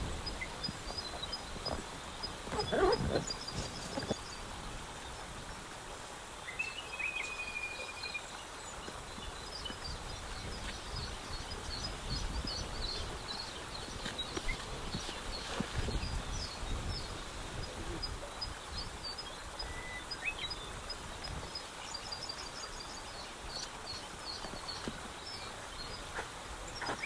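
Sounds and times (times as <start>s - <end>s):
small birds chirping: 0.0s - 5.3s, 5.9s - 27.0s.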